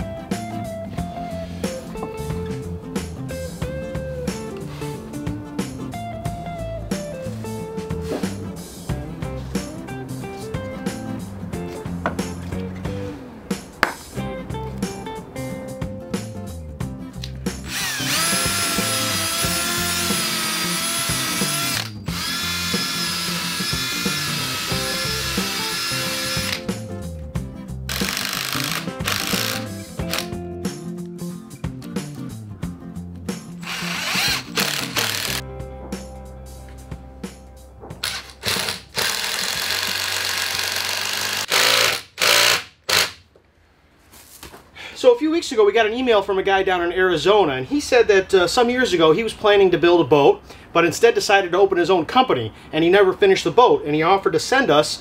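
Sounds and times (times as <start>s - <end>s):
background music: 0.0s - 43.0s
cordless drill whining: 17.6s - 26.7s, 27.9s - 30.3s, 33.6s - 35.4s, 38.0s - 43.2s.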